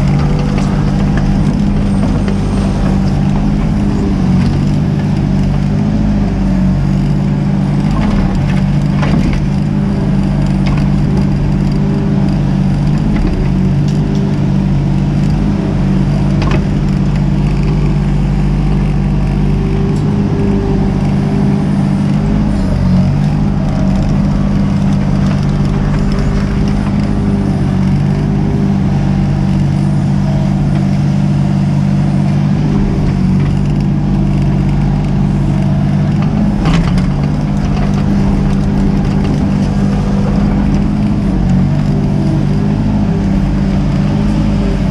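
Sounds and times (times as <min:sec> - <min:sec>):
metal knocks and clanks: 0:00.0 - 0:06.0, 0:35.6 - 0:42.8
excavator diesel engine running: 0:00.0 - 0:44.9.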